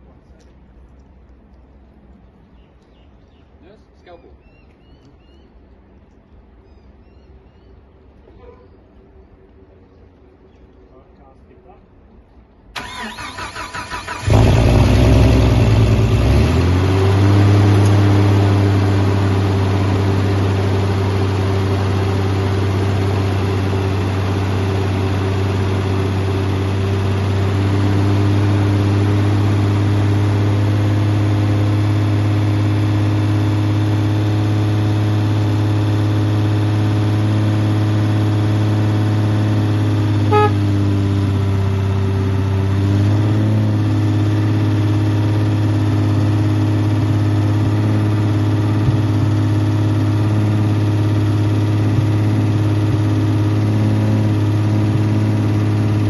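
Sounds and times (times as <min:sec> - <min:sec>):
starter motor cranking: 0:12.8 - 0:15.6
engine revving and idling: 0:12.8 - 0:56.0.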